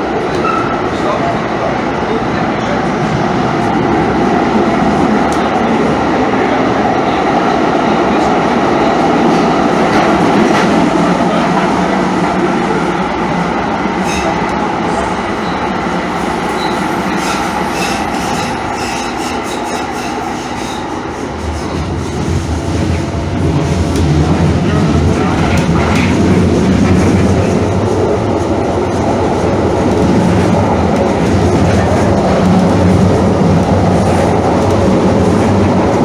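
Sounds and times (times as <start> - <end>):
train wheels rumbling on track: 0.0 - 36.0.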